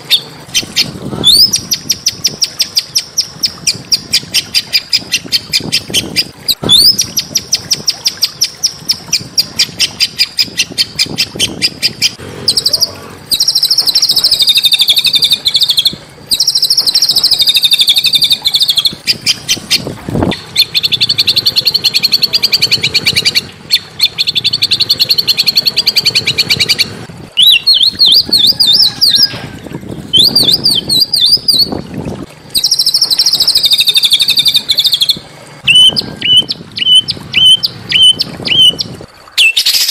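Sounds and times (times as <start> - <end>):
songbird trilling: 0.0 - 29.5, 30.1 - 31.8, 32.6 - 39.9.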